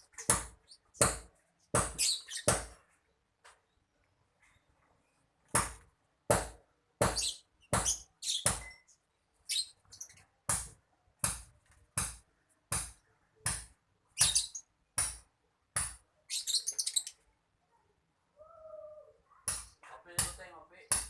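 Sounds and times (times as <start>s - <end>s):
lovebird chirping: 2.0s - 2.5s, 7.1s - 10.4s, 14.1s - 14.8s, 16.2s - 17.4s.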